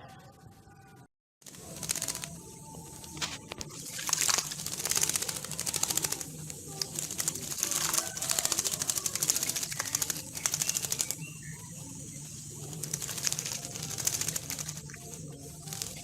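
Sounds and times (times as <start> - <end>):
myna clicking rattles: 1.4 - 16.0
steady low hum: 1.5 - 16.0.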